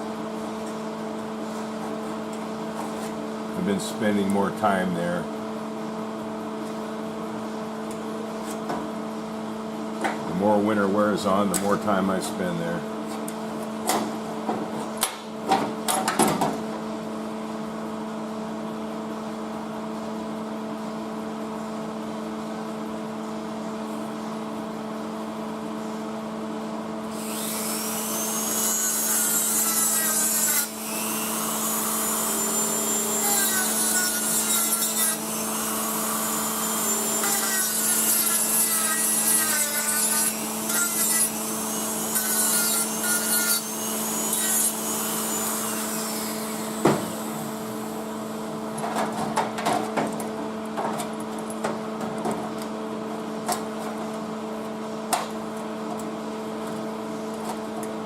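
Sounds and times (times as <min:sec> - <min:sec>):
steady low hum: 0:00.0 - 0:27.2, 0:30.0 - 0:58.0
power grinder on sheet steel: 0:27.1 - 0:47.7.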